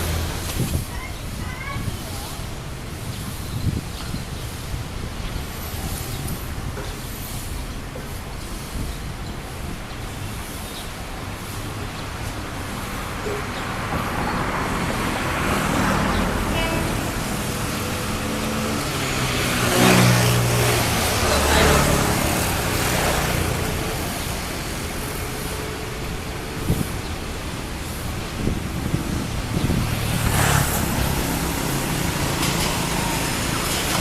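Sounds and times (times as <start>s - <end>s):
vehicle engine passing by: 13.7s - 25.5s, 27.9s - 34.0s.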